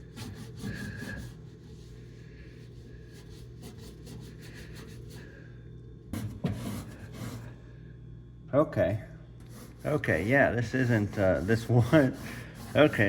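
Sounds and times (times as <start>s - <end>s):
rag scrubbing microwave walls: 0.0s - 5.4s, 6.1s - 7.6s, 9.4s - 13.0s
steady low hum: 0.0s - 13.0s.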